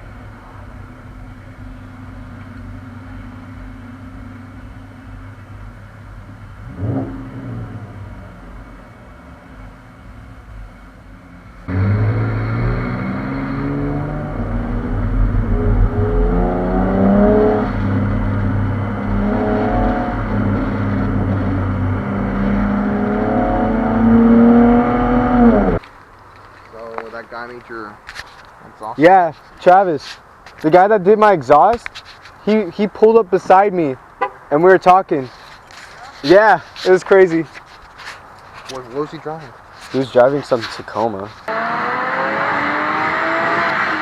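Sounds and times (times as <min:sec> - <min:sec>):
car engine and exhaust droning: 0:00.0 - 0:27.7, 0:37.1 - 0:44.0.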